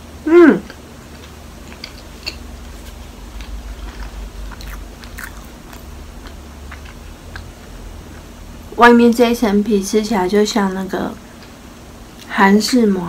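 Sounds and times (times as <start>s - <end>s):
mouth clicks and smacks chewing: 0.6s - 8.3s.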